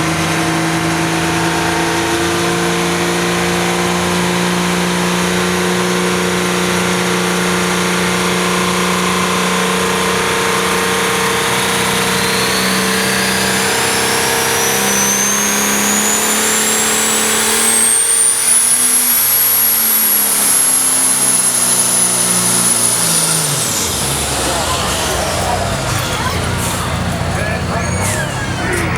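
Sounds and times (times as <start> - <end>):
tractor engine at full throttle: 0.0 - 28.9
high whine rising in pitch: 8.0 - 28.9.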